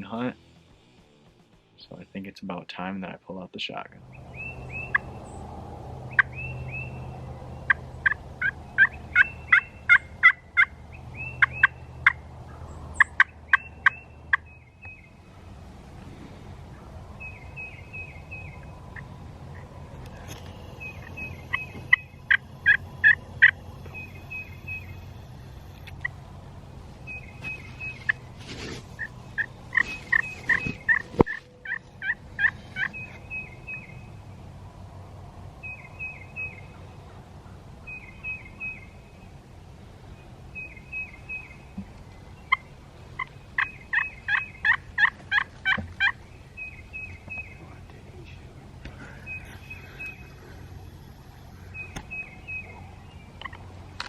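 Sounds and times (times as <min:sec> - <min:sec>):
wild turkeys yelping: 0:04.4 - 0:05.4, 0:06.0 - 0:15.4, 0:16.6 - 0:26.2, 0:27.0 - 0:34.0, 0:39.9 - 0:53.9.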